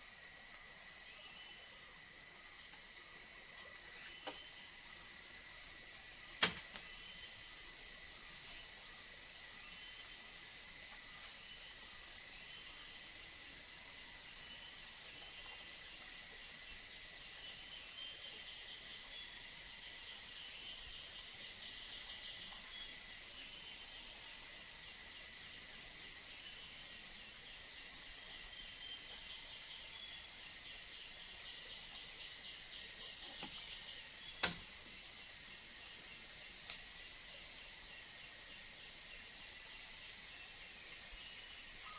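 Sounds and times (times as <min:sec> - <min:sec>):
jungle insects chorus: 0:00.0 - 0:41.9
sharp click: 0:34.4 - 0:34.7.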